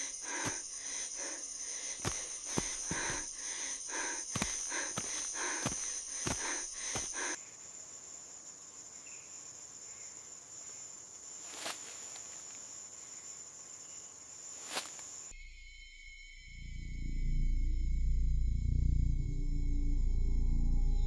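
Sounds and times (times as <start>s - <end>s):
breathy puffs: 0.0s - 7.4s
insect drone: 0.0s - 21.0s
music: 15.4s - 21.0s.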